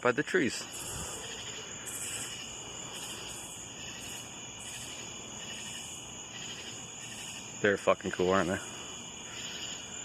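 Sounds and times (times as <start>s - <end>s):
night insects trilling: 0.0s - 10.0s
rasping insect pulse: 0.2s - 7.7s.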